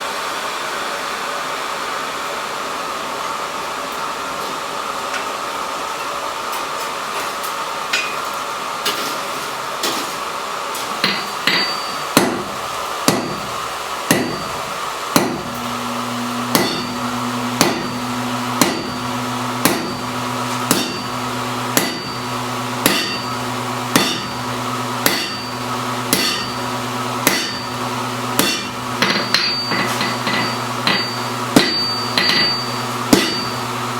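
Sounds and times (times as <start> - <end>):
hammer striking metal on anvil: 11.0 - 14.6, 15.2 - 15.6, 16.4 - 33.7.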